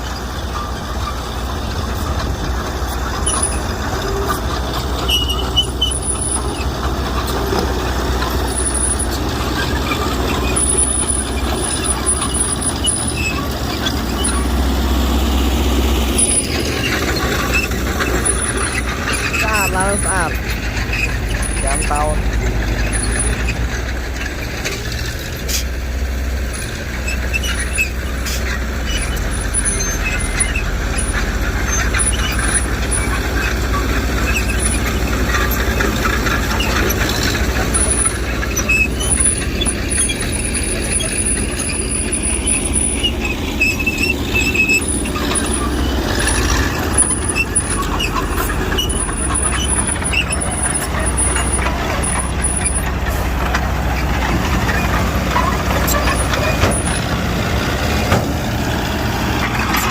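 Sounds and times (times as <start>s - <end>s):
heavy diesel machinery running: 0.0s - 59.9s
short high squeals: 3.2s - 24.8s, 26.5s - 53.3s.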